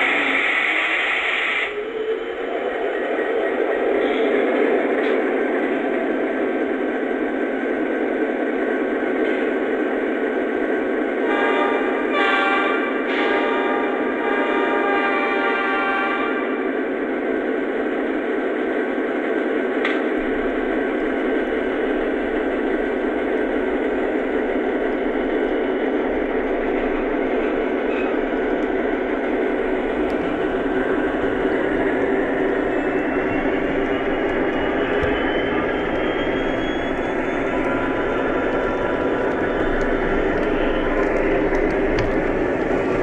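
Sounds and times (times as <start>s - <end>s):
model train whirring on track: 0.0s - 43.0s
faint whine: 20.2s - 43.0s.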